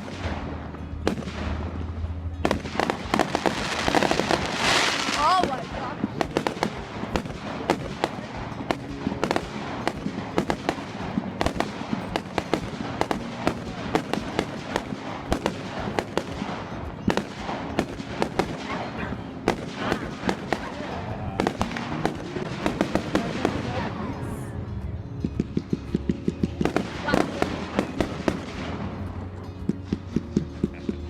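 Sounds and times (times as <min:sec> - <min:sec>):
firework bangs and crackles: 0:00.0 - 0:31.0.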